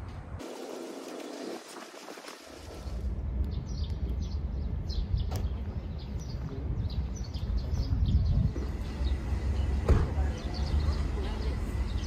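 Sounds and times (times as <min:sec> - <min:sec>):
small birds chirping: 0:03.5 - 0:12.0.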